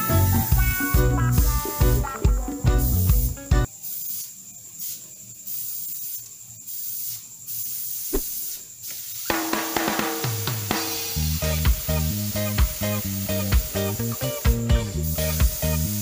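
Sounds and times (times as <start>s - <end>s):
background music: 0.0s - 3.7s, 11.1s - 16.0s
airbrush spraying hiss: 2.8s - 9.6s, 10.6s - 16.0s.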